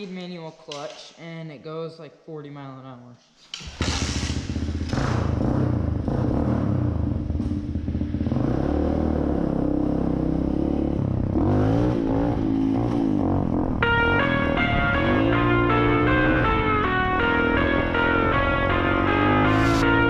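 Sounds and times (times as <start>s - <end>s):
dirt bike engine revving: 3.6s - 20.0s
music: 13.8s - 20.0s.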